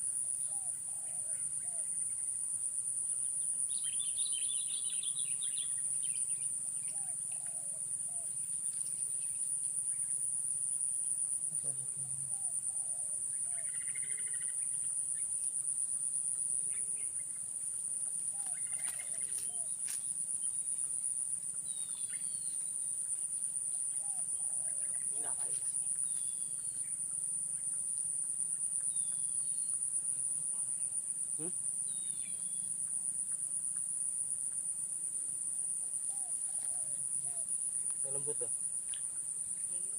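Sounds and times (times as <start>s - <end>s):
insects buzzing trill: 0.0s - 39.9s
small birds chirping: 21.6s - 29.9s.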